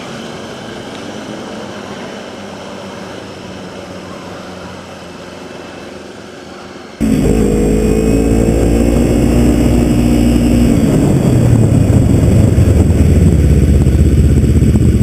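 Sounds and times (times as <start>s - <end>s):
motorcycle engine idling: 7.0s - 15.0s.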